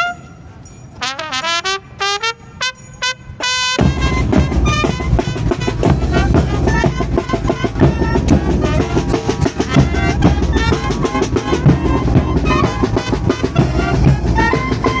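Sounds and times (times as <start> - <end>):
held horn notes: 0.0 - 15.0
drums keeping the beat: 3.8 - 15.0.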